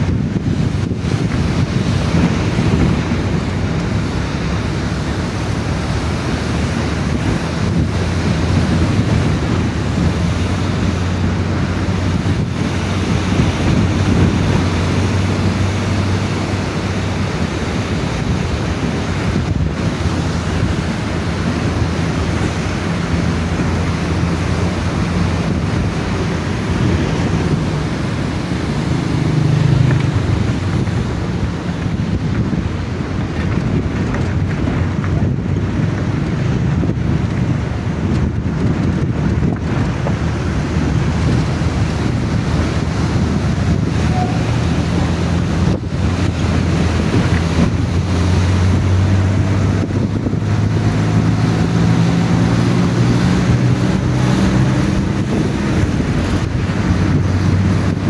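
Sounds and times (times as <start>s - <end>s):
river water rushing: 0.0s - 58.0s
wind buffeting microphone: 0.0s - 58.0s.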